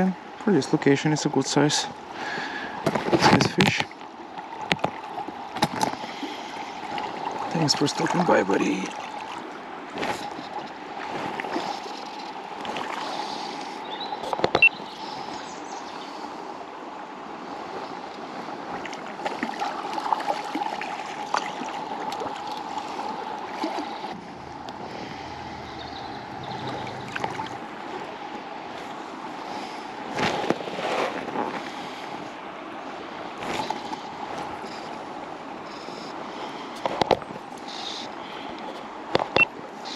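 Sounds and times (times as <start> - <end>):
river water running: 0.0 - 39.9
short knocks and splashes: 2.8 - 3.9, 25.5 - 27.8.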